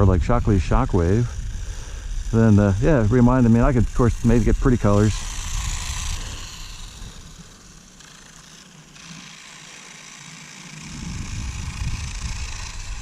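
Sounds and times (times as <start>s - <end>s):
wind gusting on microphone: 0.0s - 7.4s, 10.8s - 13.0s
toy electric motor whirring: 0.0s - 13.0s.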